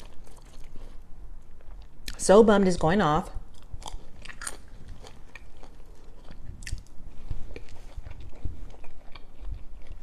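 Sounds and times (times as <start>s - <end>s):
person chewing food: 0.0s - 2.2s, 3.5s - 10.0s
small crunches: 3.5s - 10.0s.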